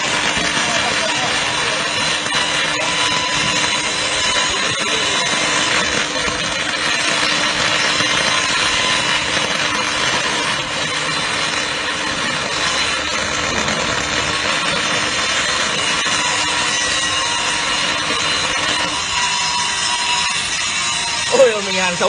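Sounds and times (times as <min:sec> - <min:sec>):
welding arc crackling: 0:00.0 - 0:22.0.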